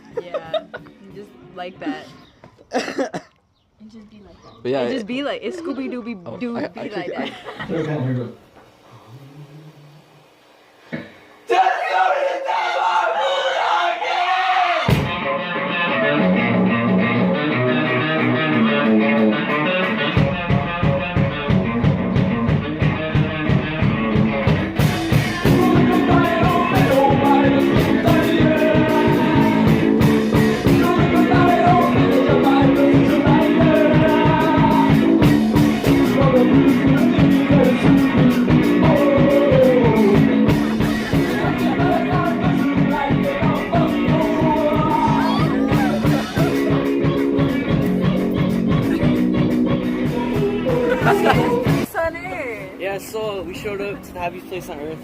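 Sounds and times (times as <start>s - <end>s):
rock song with guitar and singing: 14.8s - 51.9s
pounding drum beat: 14.9s - 15.2s, 20.2s - 51.9s.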